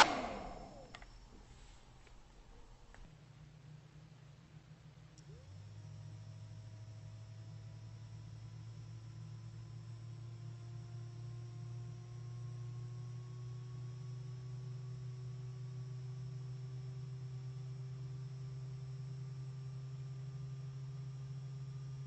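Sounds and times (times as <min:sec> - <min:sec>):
faint low hum: 0:00.0 - 0:12.9.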